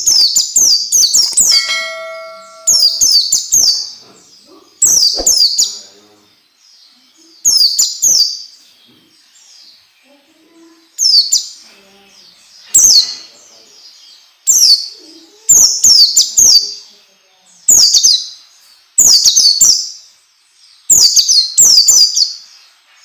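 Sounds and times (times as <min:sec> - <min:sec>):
bird song with rapid high notes: 0:00.0 - 0:14.9.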